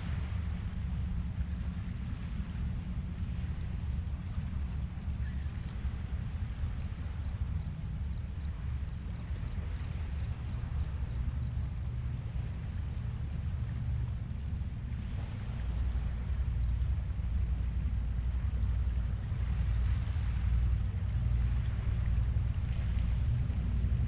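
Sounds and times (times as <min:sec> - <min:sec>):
gentle surf rumble: 0:00.0 - 0:24.0
faint high ticking chirps: 0:00.2 - 0:24.0.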